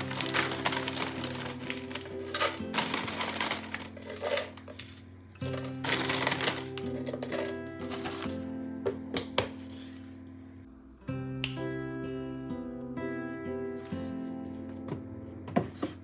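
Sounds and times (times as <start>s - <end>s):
household items clicking and rustling: 0.0s - 9.7s
background music with chords: 0.0s - 16.0s.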